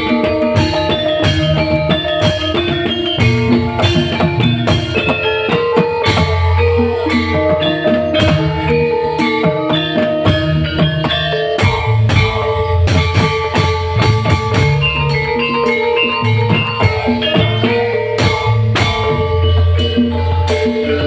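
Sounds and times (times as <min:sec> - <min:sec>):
drum kit beat: 0:00.0 - 0:21.0
live band playing: 0:00.0 - 0:21.0.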